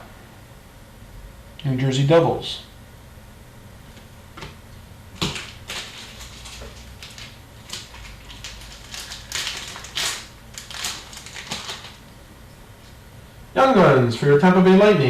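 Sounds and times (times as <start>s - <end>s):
cards rustling and clicking: 5.2s - 12.0s.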